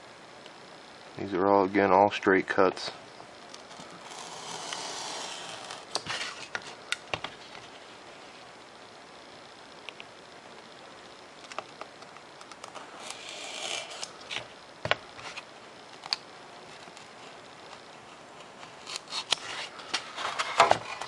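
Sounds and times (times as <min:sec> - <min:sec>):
knife cutting foam sheet: 0:04.0 - 0:06.5, 0:13.0 - 0:14.1.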